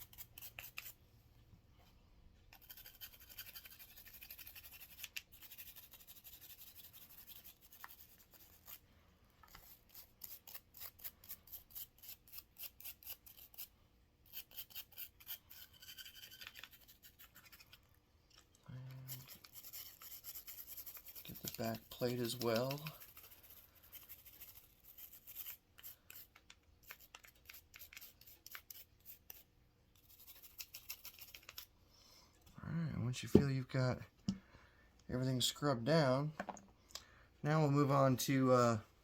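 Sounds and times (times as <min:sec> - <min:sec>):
brush scrubbing metal: 0:02.5 - 0:08.8, 0:09.5 - 0:17.9, 0:19.0 - 0:31.7.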